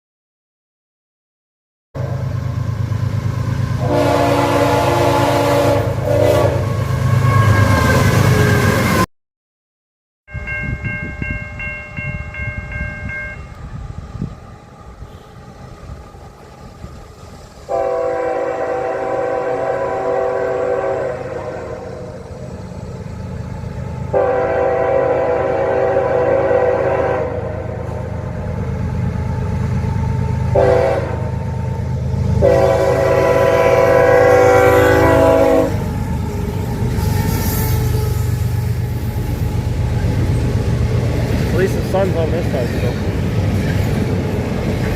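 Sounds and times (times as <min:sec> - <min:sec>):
passing train rumble: 0:02.0 - 0:09.1, 0:10.3 - 0:44.9
locomotive horn: 0:03.8 - 0:09.0, 0:14.9 - 0:16.4, 0:17.7 - 0:22.2, 0:24.1 - 0:28.1, 0:30.0 - 0:39.5.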